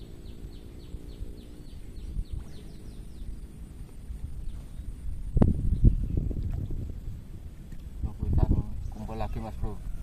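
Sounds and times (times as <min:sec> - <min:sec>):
bird chirping: 0:00.0 - 0:03.6
low outdoor rumble: 0:00.0 - 0:10.0.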